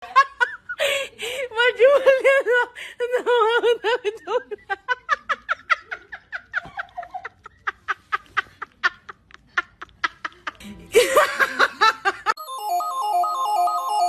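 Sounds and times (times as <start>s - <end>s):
bleepy electronic music: 12.4s - 14.0s.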